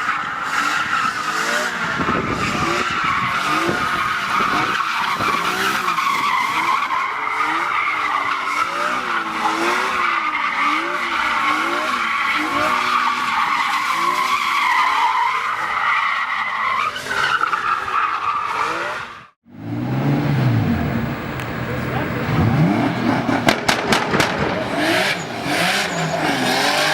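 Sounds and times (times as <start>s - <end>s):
car engine revving: 19.5s - 26.9s
tyres squealing: 22.0s - 26.9s.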